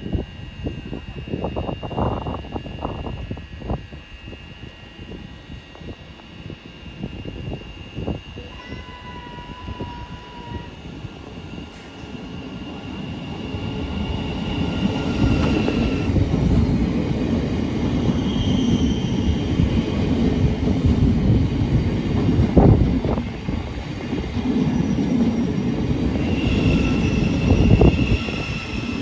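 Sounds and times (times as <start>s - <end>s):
train rumbling along track: 0.0s - 29.0s
high wheel squeal: 8.5s - 10.8s, 26.2s - 29.0s.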